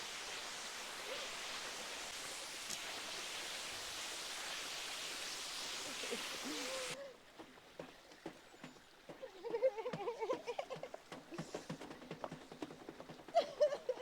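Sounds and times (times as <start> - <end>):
waterfall rushing: 0.0 - 7.0.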